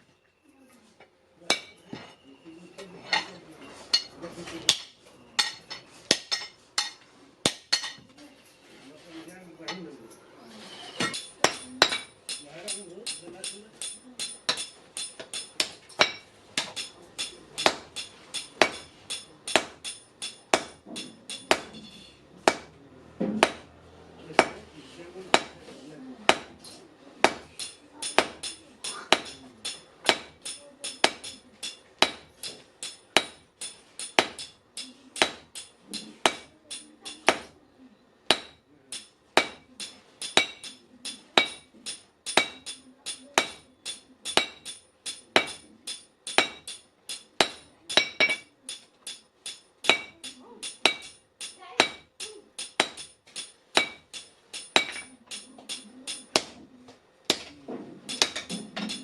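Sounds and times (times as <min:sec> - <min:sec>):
hammer striking steel on anvil: 0:01.5 - 0:02.2, 0:03.9 - 0:08.0, 0:11.0 - 0:24.7, 0:25.3 - 0:25.7, 0:26.3 - 0:37.6, 0:38.3 - 0:56.6, 0:57.3 - 0:59.0.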